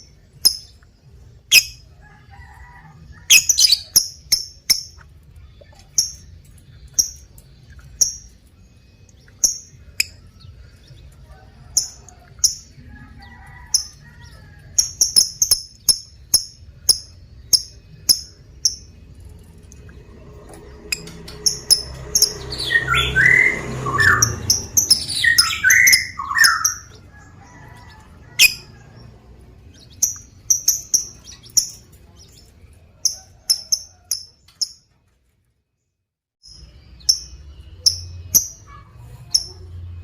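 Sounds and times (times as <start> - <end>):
lovebirds chirping: 0.0 - 2.4, 3.1 - 19.9, 20.7 - 34.8.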